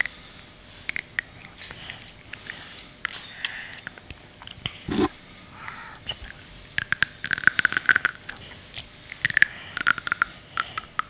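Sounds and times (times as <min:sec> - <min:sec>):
child chewing seaweed beads: 0:00.0 - 0:11.0
short low mouth sound: 0:04.9 - 0:05.2.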